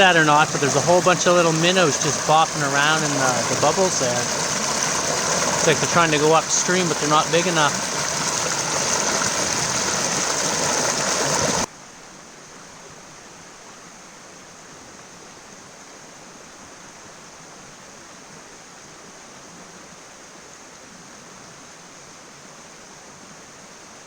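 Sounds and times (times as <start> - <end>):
river rushing through rapids: 0.0 - 11.7.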